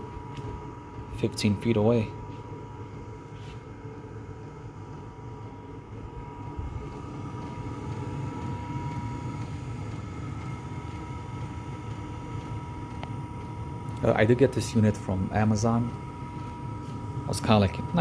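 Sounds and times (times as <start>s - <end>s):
air heater drone with whine: 0.0s - 18.0s.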